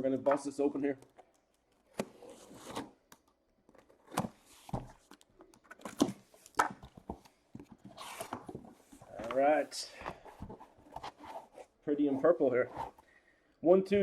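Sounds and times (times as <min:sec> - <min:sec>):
cardboard knocks and scrapes: 0:06.0 - 0:11.7.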